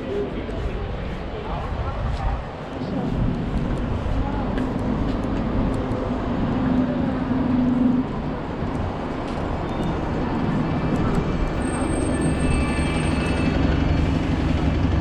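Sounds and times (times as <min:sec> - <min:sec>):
vehicles passing: 0:00.0 - 0:15.0
engine hum: 0:10.5 - 0:15.0.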